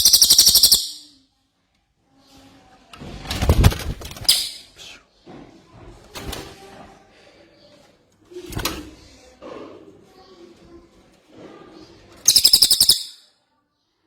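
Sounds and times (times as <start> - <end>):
quieter bird chatter: 0.0 - 1.2, 8.9 - 14.0.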